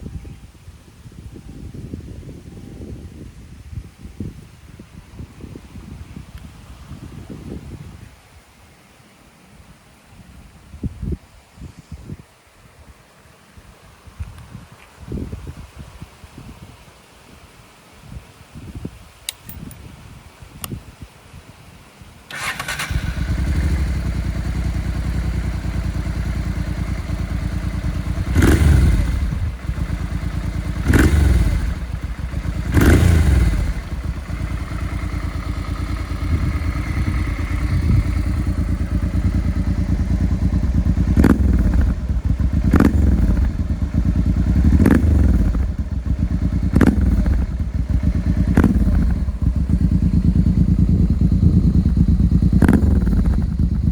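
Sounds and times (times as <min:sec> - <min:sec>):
motorcycle engine starting and idling: 0:22.3 - 0:53.9.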